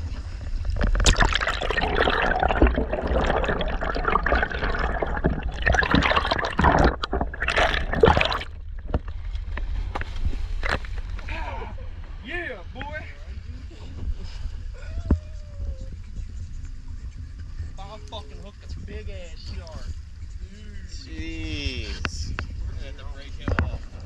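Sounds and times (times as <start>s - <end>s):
water splashing and churning: 0.0s - 11.1s.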